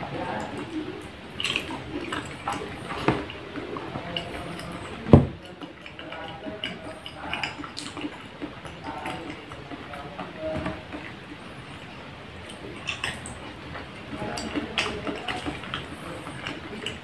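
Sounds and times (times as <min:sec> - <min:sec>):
wet chewing of pudding: 0:00.0 - 0:17.0
low thump: 0:05.1 - 0:05.4.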